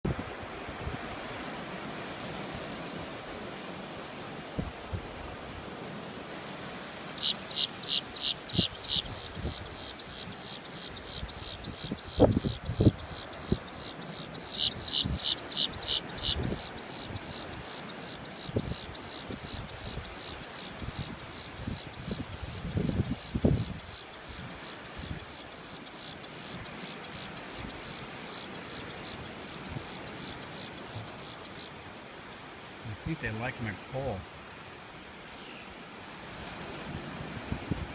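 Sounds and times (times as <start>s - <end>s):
background hiss: 0.1s - 37.9s
shore bird calling: 7.2s - 22.6s, 23.6s - 31.8s
insects chirring: 7.2s - 32.0s.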